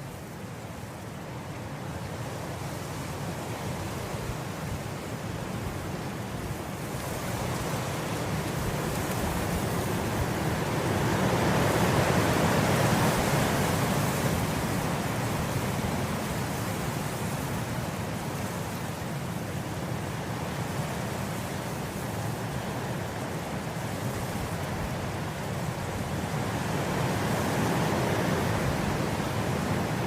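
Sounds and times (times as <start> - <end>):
wind blowing through grass: 0.0 - 30.0.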